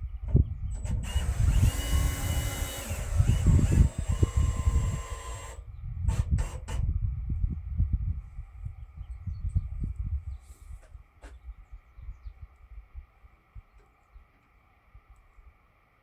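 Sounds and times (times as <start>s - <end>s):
bandsaw mill motor whine: 0.7s - 6.7s.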